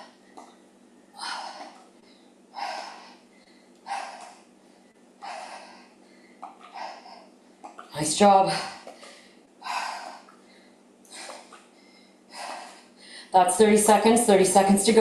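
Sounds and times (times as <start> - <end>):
woman breathing hard: 1.1 - 7.7, 8.5 - 13.4.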